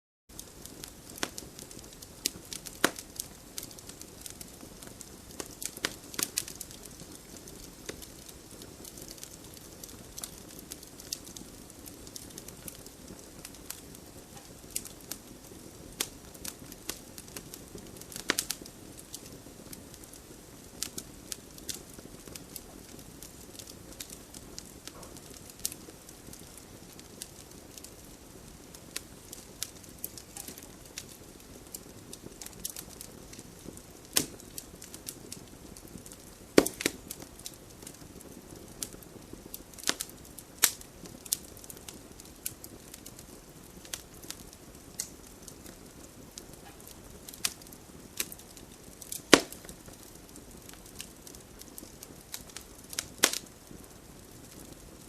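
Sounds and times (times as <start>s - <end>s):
burning wood popping and crackling: 0.3s - 55.0s
campfire flame rushing: 0.4s - 55.0s
loud wood snaps: 36.6s - 37.1s, 49.1s - 49.6s.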